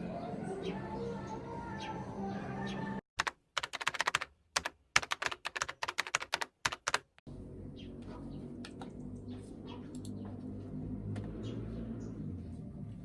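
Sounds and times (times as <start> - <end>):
typing on computer keyboard: 3.2 - 7.2.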